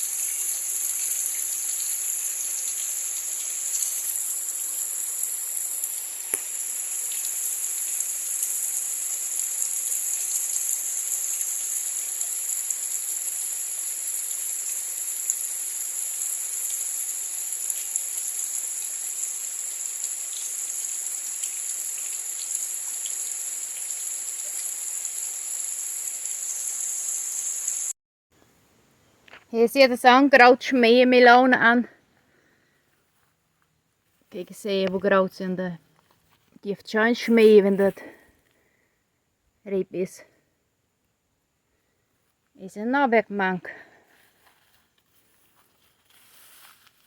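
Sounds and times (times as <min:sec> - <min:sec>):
insects shrilling: 0:00.0 - 0:27.9
faint hiss: 0:00.0 - 0:31.3, 0:43.8 - 0:47.0
small ticks: 0:02.7 - 0:13.3.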